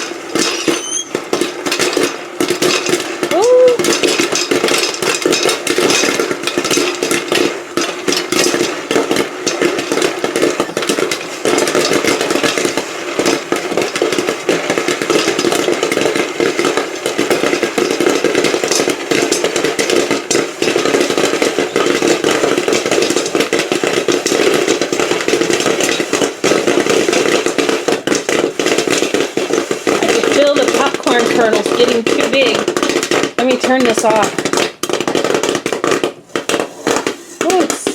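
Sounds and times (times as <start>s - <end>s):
popcorn kernels popping: 0.0s - 37.9s.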